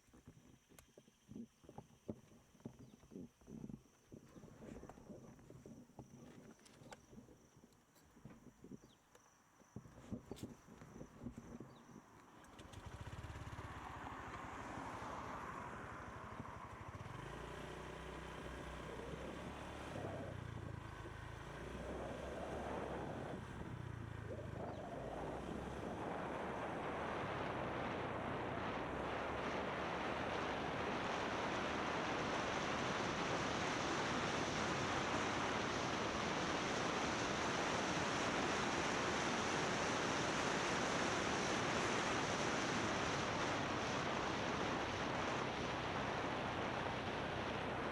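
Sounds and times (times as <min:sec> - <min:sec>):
motorbike engine running: 0:12.5 - 0:39.8
wind rushing over microphone: 0:18.7 - 0:47.9.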